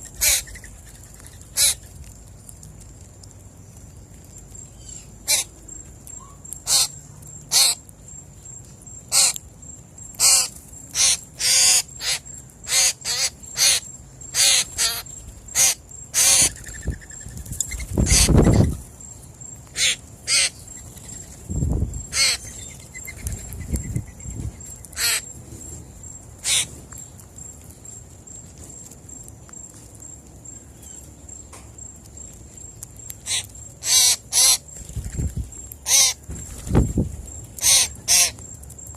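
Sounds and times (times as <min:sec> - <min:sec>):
crows calling harshly: 0:00.2 - 0:00.6, 0:01.5 - 0:01.8, 0:05.2 - 0:05.5, 0:06.6 - 0:07.8, 0:09.1 - 0:09.4, 0:10.2 - 0:16.8, 0:18.0 - 0:18.7, 0:19.7 - 0:20.6, 0:22.1 - 0:22.5, 0:24.9 - 0:25.3, 0:26.4 - 0:26.7, 0:33.2 - 0:34.6, 0:35.8 - 0:36.2, 0:37.6 - 0:38.4.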